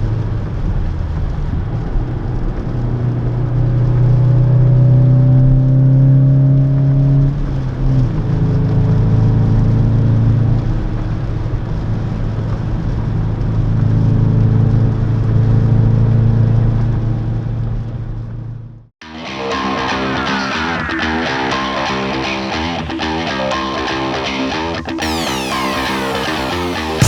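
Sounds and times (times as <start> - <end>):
road noise: 16.1 - 23.7
car engine accelerating: 25.0 - 27.0.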